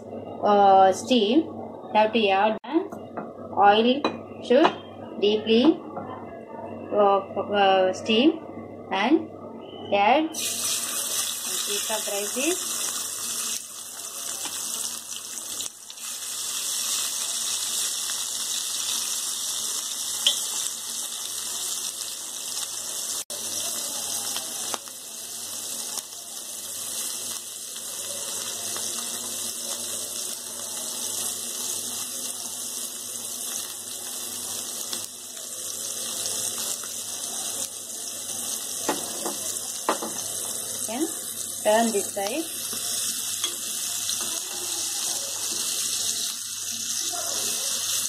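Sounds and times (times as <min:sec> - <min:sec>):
fish sizzling in hot oil: 0:10.4 - 0:48.0.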